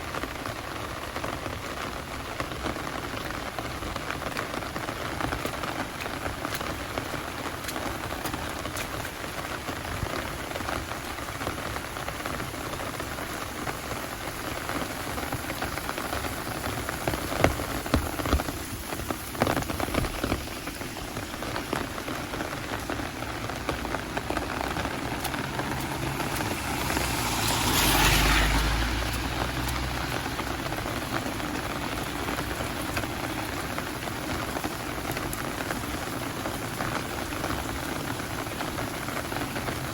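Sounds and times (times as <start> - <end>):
heavy rain falling: 0.0 - 39.9
louder rain taps: 0.0 - 39.9
vehicle passing: 24.0 - 32.2.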